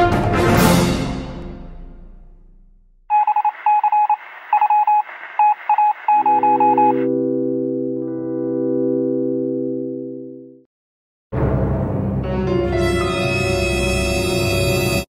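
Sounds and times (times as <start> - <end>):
electronic beeps: 3.1 - 7.1
held musical chord: 7.1 - 10.5.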